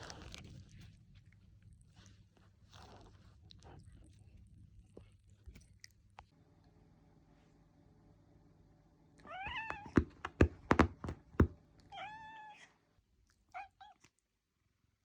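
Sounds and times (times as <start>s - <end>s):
cat meowing: 9.2s - 10.1s, 11.9s - 12.7s
sharp thumps: 9.6s - 11.6s.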